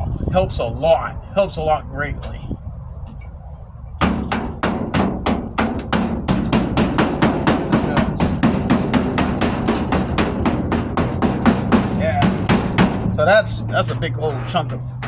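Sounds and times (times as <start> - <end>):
hammer striking sheet metal: 4.0 - 15.0.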